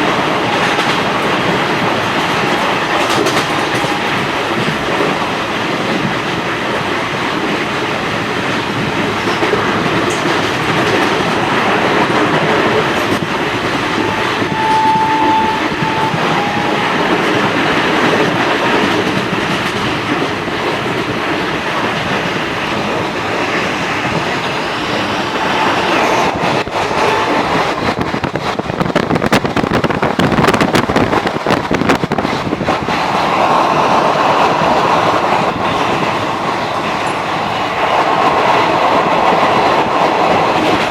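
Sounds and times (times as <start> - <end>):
train wheels clattering on rails: 0.0 - 40.9
high steady tone: 13.7 - 17.5.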